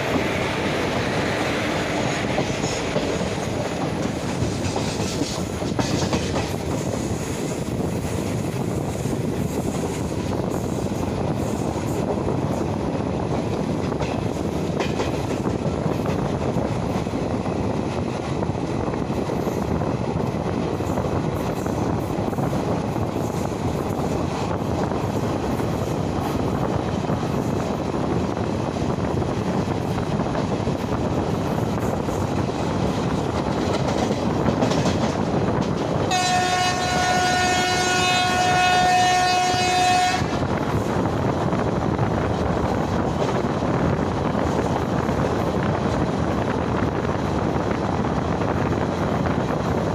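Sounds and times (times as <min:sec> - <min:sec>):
train wheels on rails: 0:00.0 - 0:49.9
train horn blast: 0:36.1 - 0:40.4.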